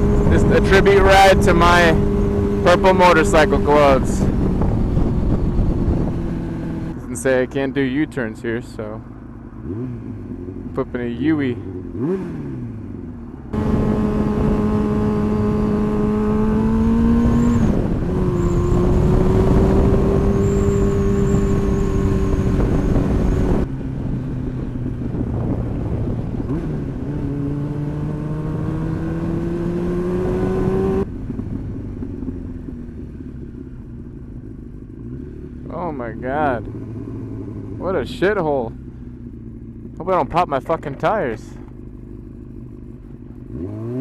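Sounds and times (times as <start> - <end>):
wind rushing: 0.0 - 7.0
motorcycle engine revving: 0.0 - 44.0.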